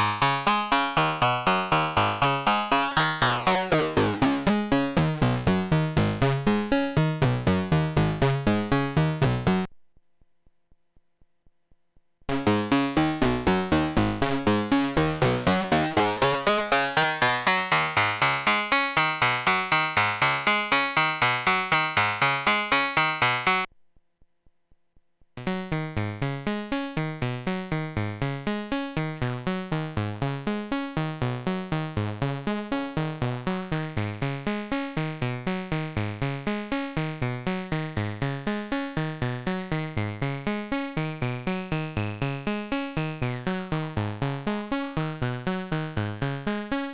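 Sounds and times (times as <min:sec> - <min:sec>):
fast synth note sequence: 0:00.0 - 0:05.2, 0:12.3 - 0:23.7.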